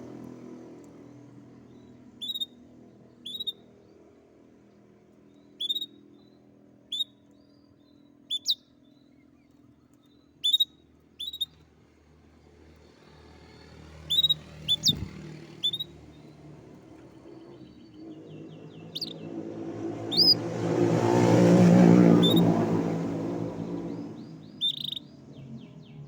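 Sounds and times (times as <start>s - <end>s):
canary chirping: 2.2s - 2.6s, 3.2s - 3.6s, 5.5s - 6.0s, 6.9s - 7.2s, 8.3s - 8.7s, 10.4s - 11.6s, 14.0s - 19.4s, 20.0s - 20.5s, 22.1s - 22.6s, 23.8s - 26.0s
vehicle passing: 11.9s - 26.0s.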